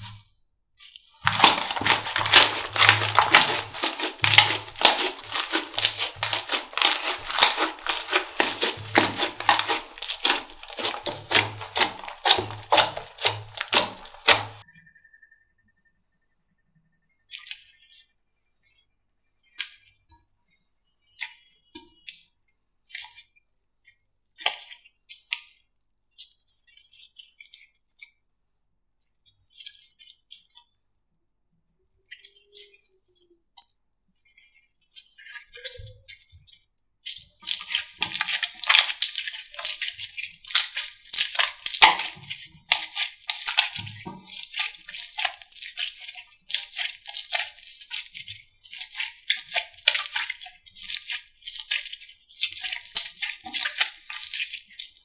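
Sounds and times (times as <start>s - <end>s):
slime clicking and crackling: 1.2s - 14.6s, 37.1s - 55.0s.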